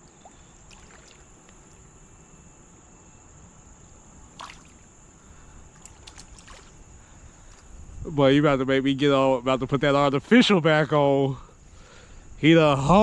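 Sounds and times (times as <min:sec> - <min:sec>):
creek water running: 0:00.0 - 0:02.1, 0:03.9 - 0:08.1.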